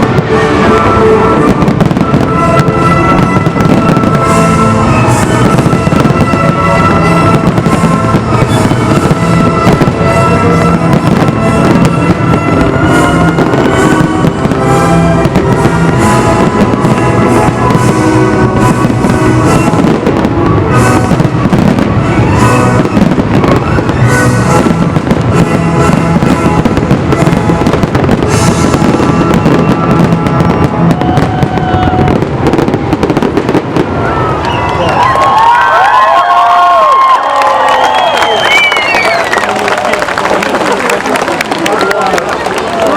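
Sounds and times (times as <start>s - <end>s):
music playing: 0.0s - 33.9s
fireworks bursting: 0.0s - 42.9s.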